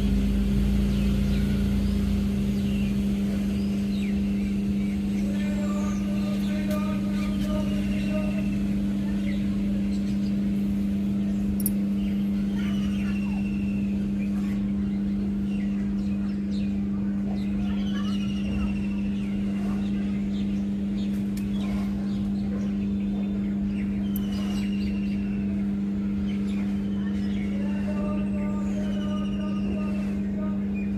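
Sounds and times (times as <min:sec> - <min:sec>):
birds chirping: 0:00.0 - 0:30.9
low hum: 0:00.0 - 0:30.9.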